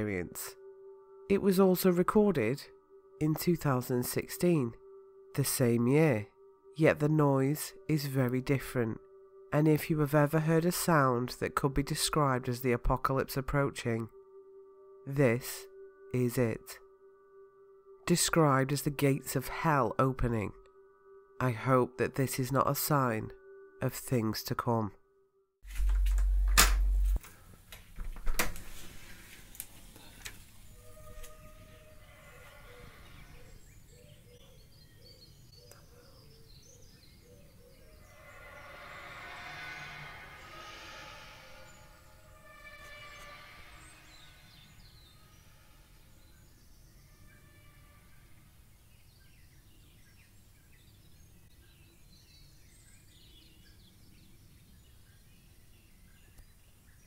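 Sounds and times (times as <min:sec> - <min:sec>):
low wavering tone: 0:00.0 - 0:24.2, 0:25.0 - 0:27.2, 0:36.2 - 0:48.5
background hiss: 0:25.7 - 0:34.0
sharp click: 0:26.0 - 0:27.2
birds chirping: 0:29.8 - 0:57.0.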